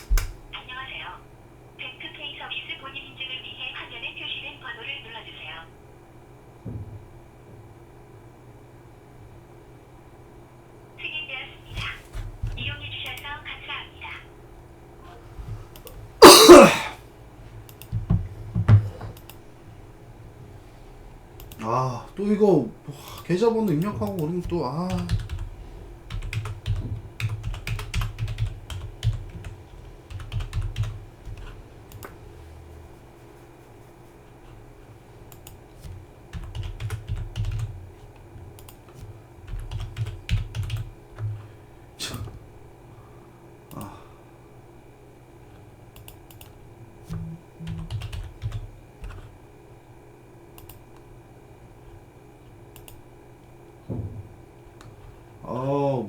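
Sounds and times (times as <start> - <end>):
sharp keyboard key clicks: 0.0 - 0.4
computer keyboard typing: 11.8 - 13.4, 17.6 - 19.4, 23.0 - 32.2, 35.3 - 41.5, 45.9 - 49.4, 50.6 - 51.0, 52.7 - 53.1
louder dull keyboard knocks: 17.9 - 19.2.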